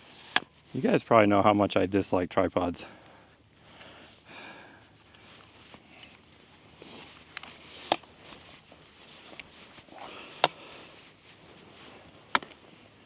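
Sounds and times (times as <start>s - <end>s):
tripod clicks and knocks: 0.0s - 0.6s, 7.3s - 8.2s, 9.3s - 10.7s, 12.3s - 12.6s
rustling: 0.0s - 1.0s, 4.8s - 13.0s.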